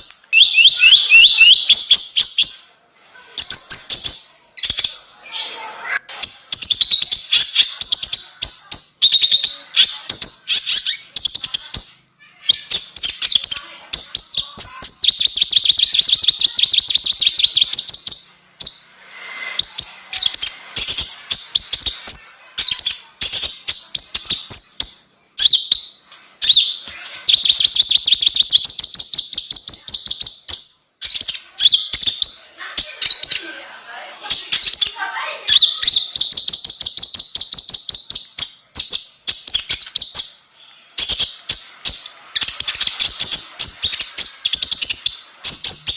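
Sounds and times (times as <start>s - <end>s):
bird chattering trills: 0.0s - 2.6s.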